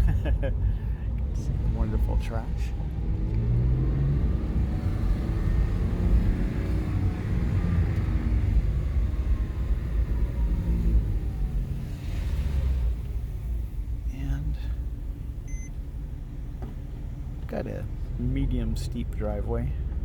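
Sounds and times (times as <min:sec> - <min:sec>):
car engine rumbling: 0:00.0 - 0:20.0
road noise: 0:00.0 - 0:20.0.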